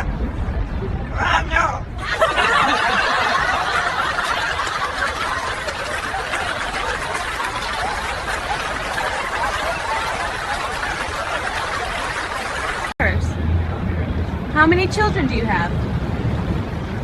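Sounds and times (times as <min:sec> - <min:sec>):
crowd laughing: 0:02.0 - 0:13.0.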